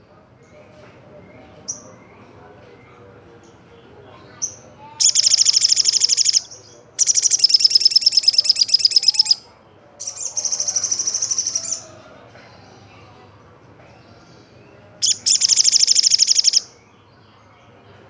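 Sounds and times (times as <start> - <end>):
bird singing fast high trills: 4.4 - 9.4, 10.0 - 11.8, 15.0 - 16.7.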